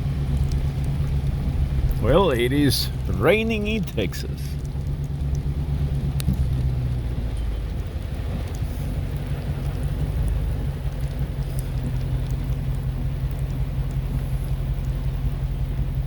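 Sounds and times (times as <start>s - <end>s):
faint raindrop ticks: 0.0s - 16.0s
steady rain: 0.0s - 16.0s.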